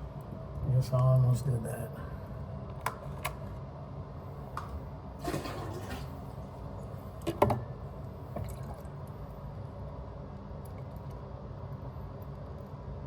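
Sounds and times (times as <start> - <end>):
water draining and trickling: 8.3 - 9.1.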